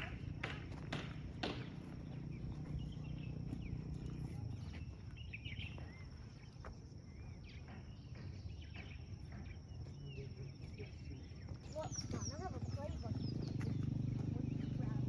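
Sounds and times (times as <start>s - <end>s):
low steady rumble: 0.0s - 6.4s
bird chirps: 0.0s - 15.0s.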